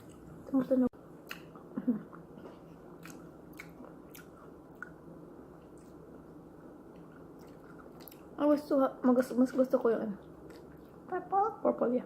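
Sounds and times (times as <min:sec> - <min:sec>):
person chewing grapes: 0:01.2 - 0:08.4, 0:10.4 - 0:11.0.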